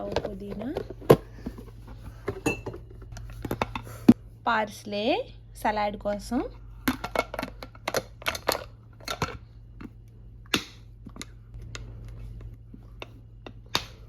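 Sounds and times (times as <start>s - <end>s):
plastic containers clicking and knocking: 0.0s - 3.9s, 6.8s - 11.8s
faint low hum: 0.0s - 14.0s.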